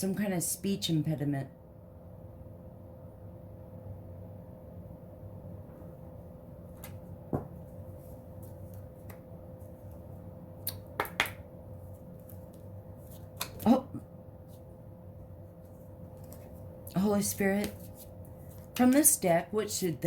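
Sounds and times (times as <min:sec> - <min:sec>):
low electrical hum: 0:00.0 - 0:20.0
cards clicking and snapping: 0:12.2 - 0:13.6.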